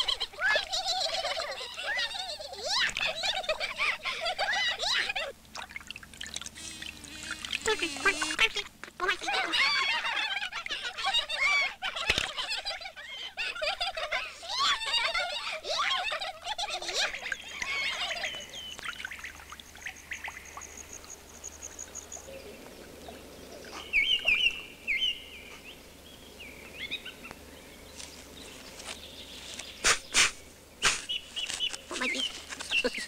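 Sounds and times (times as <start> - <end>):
birds chirping and twittering: 5.9 - 33.0.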